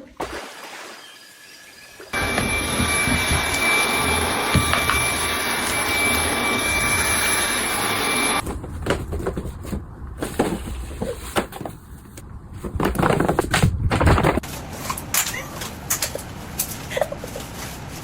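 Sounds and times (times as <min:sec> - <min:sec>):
appliance motor whirring and whining: 0:02.2 - 0:08.4.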